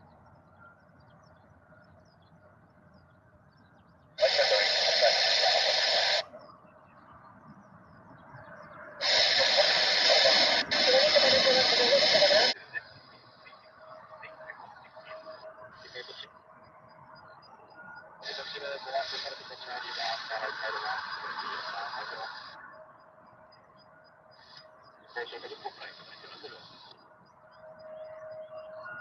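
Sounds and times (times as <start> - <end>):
hissy air traffic control radio: 4.2 - 6.7, 8.8 - 29.0.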